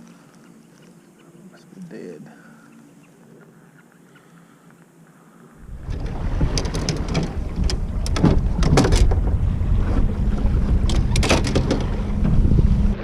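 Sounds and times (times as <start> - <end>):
low hum: 5.6 - 13.0
wind buffeting microphone: 5.6 - 13.0
sharp clicks and knocks: 5.9 - 9.4, 10.8 - 12.4.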